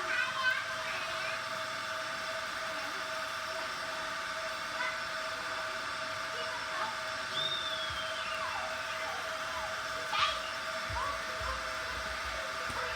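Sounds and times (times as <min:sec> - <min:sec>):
toy train whirring: 0:00.0 - 0:12.9.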